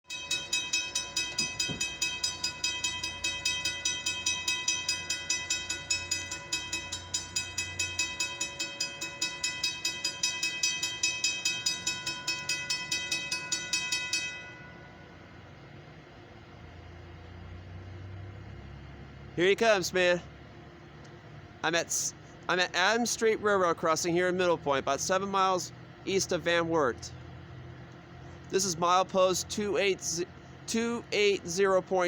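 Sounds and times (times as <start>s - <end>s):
crossing warning bell ringing: 0.0s - 15.6s.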